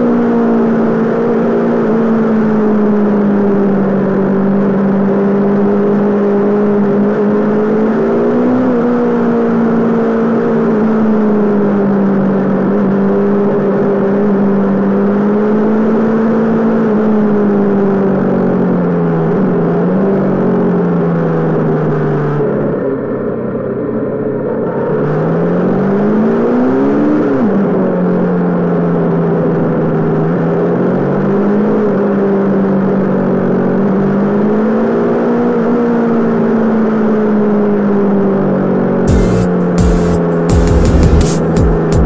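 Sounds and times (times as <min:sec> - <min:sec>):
wind and tyre noise: 0:00.0 - 0:39.1
motorcycle engine revving: 0:39.1 - 0:42.0
music: 0:39.1 - 0:42.0.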